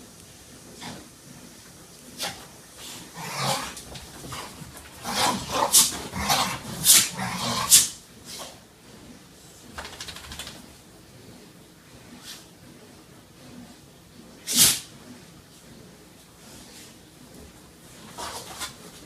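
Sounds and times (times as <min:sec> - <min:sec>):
puppies sneezing: 0:05.2 - 0:07.1, 0:14.5 - 0:14.9.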